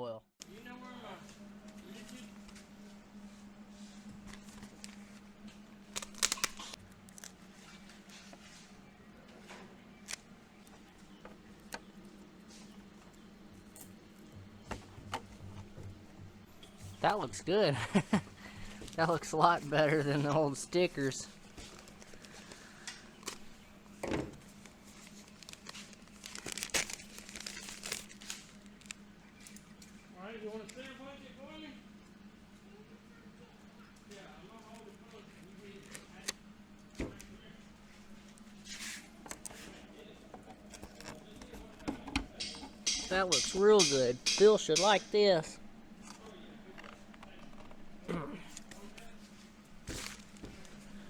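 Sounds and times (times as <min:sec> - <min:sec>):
steady low hum: 0:00.0 - 0:51.0
paper crinkling and rustling: 0:04.1 - 0:08.8, 0:20.9 - 0:23.5, 0:24.4 - 0:29.8, 0:46.0 - 0:51.0.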